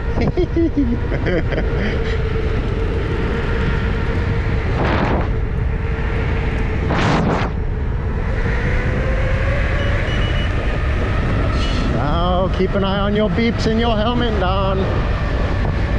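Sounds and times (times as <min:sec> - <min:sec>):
wind rushing over microphone: 0:00.0 - 0:15.9
loud whooshes: 0:04.2 - 0:10.0.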